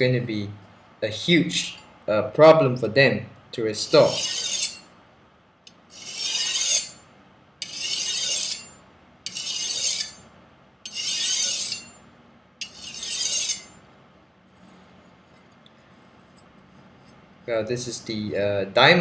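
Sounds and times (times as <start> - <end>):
knife rasping on whetstone: 3.8 - 4.8, 5.9 - 7.0, 7.6 - 8.7, 9.3 - 10.2, 10.9 - 12.0, 12.6 - 13.8.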